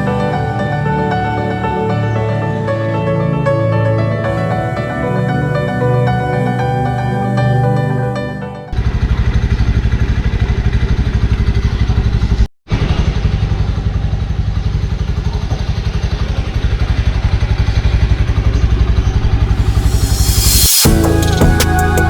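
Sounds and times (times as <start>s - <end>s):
motorcycle engine running: 8.7s - 22.0s.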